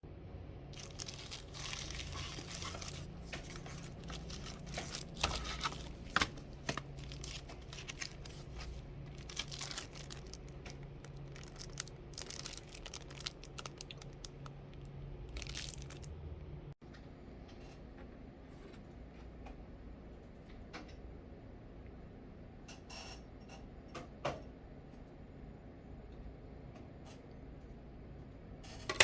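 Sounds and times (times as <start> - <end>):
low steady hum: 0.1 - 22.8
crinkling and rustling: 0.7 - 16.2.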